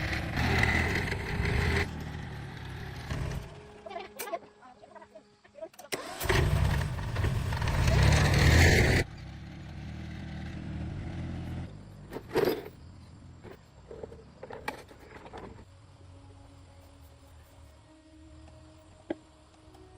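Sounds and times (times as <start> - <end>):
tractor engine running: 0.0 - 3.8, 5.9 - 15.7.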